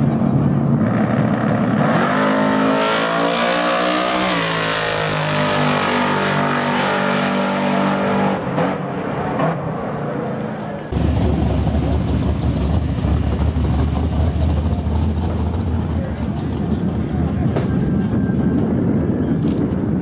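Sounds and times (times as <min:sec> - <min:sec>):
drag car engine at full throttle: 0:00.0 - 0:19.7.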